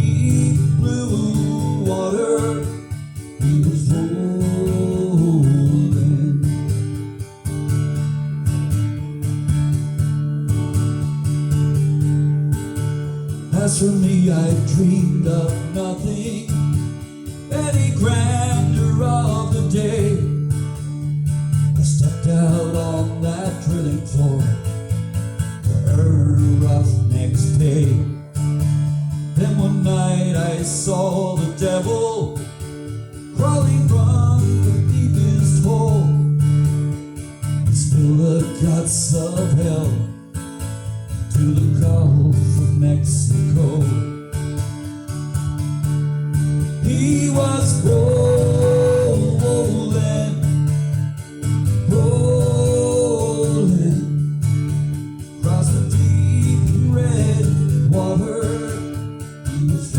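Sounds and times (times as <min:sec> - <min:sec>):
person singing: 0:00.0 - 0:06.7, 0:17.5 - 0:20.4, 0:25.7 - 0:28.2, 0:46.8 - 0:50.6, 0:51.8 - 0:54.3, 0:55.4 - 0:59.9
guitar accompaniment: 0:00.0 - 0:59.9.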